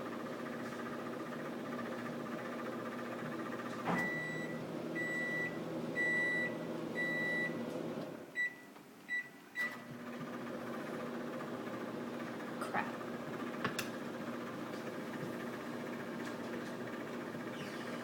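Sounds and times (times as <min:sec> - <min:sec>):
microwave oven humming: 0:00.0 - 0:18.0
long microwave beeps: 0:03.9 - 0:07.7, 0:08.3 - 0:09.8.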